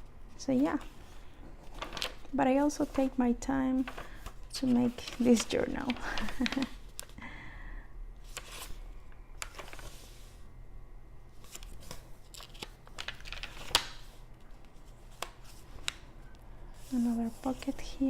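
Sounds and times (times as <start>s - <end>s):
paper pages rustling: 0.6s - 7.2s, 8.2s - 8.8s, 9.4s - 10.4s, 11.3s - 16.0s.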